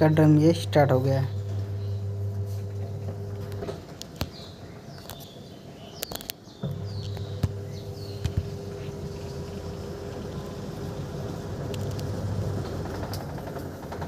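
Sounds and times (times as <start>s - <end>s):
washing machine motor hum: 0.0s - 4.9s, 6.6s - 14.0s
sharp clicks: 6.0s - 8.5s.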